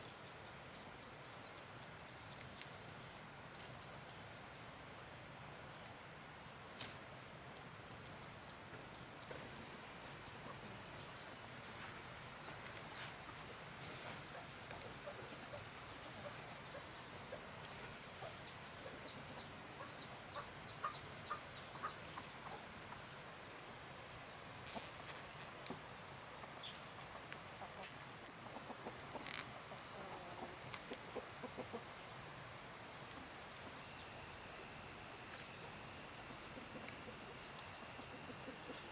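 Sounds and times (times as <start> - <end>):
crickets droning: 0.0 - 38.9
chickens clucking: 13.1 - 23.2, 26.4 - 32.4, 35.6 - 38.9.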